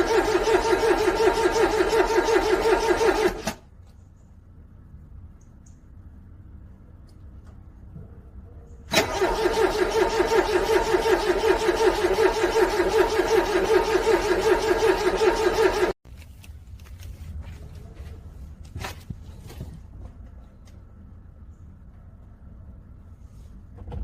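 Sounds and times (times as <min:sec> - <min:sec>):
starter motor cranking car engine: 0:00.0 - 0:03.6, 0:08.9 - 0:16.0.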